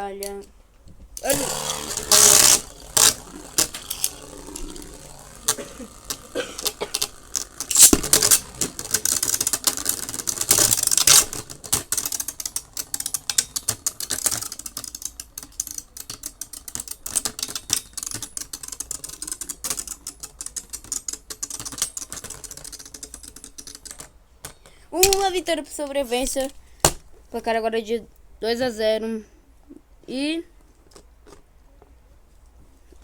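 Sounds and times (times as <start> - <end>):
spinning tops clattering: 1.2 - 25.4.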